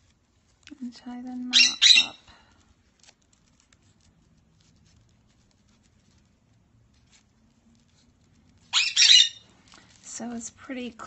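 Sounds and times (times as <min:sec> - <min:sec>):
parrot squawking: 0:01.5 - 0:02.2, 0:08.7 - 0:09.5.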